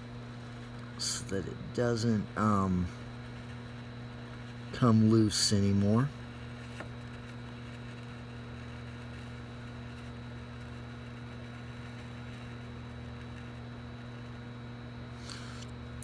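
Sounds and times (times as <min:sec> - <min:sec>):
faint high whine: 0:00.0 - 0:06.6
electrical hum: 0:00.0 - 0:16.0.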